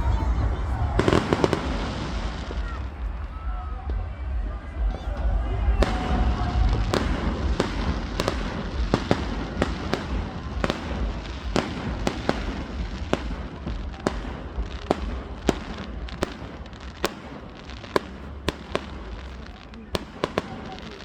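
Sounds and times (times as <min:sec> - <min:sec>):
low rumble: 0:00.0 - 0:16.2
fireworks cracking: 0:00.0 - 0:21.0.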